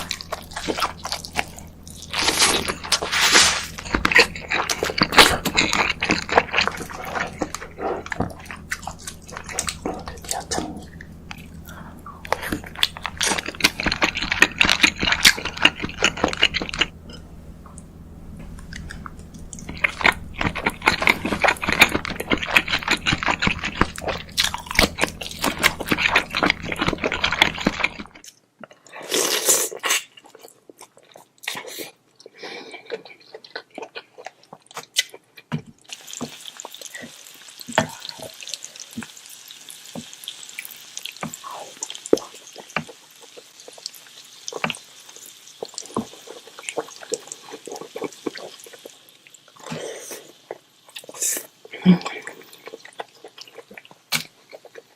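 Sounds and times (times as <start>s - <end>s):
wet chewing and sucking: 0.0s - 17.8s, 18.4s - 35.2s, 35.9s - 54.9s
low background hum: 0.0s - 54.9s
crab shells cracking: 12.3s - 16.9s.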